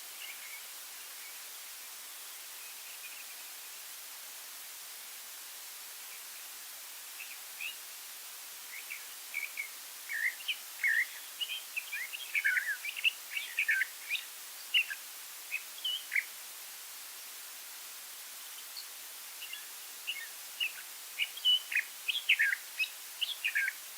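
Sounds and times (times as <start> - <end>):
steady background hiss: 0.0 - 23.9
songbirds chirping: 5.6 - 16.4, 18.3 - 23.9.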